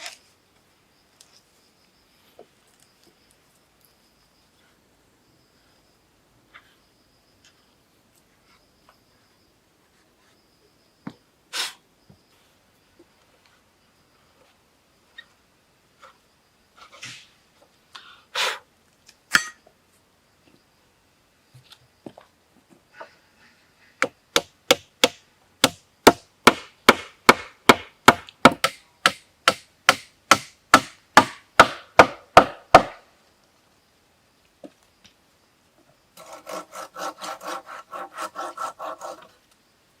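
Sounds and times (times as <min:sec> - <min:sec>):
chopping strikes on wood: 0:24.0 - 0:33.0.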